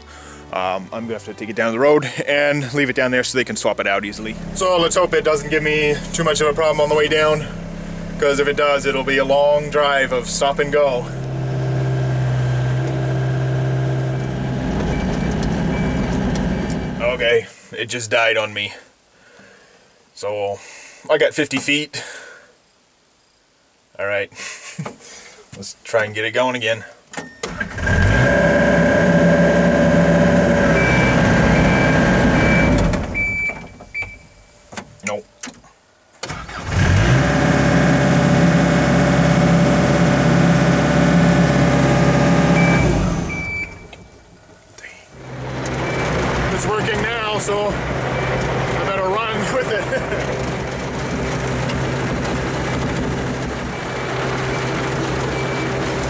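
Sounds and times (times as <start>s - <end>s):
excavator diesel engine running: 3.8s - 17.2s, 27.7s - 34.1s, 36.3s - 44.5s, 45.2s - 56.0s
high beep: 14.9s - 17.2s, 30.8s - 34.6s, 42.6s - 44.2s.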